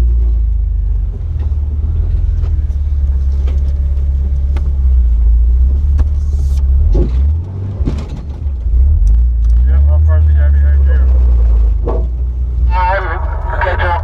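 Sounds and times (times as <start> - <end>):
engine low rumble: 0.0 - 14.0.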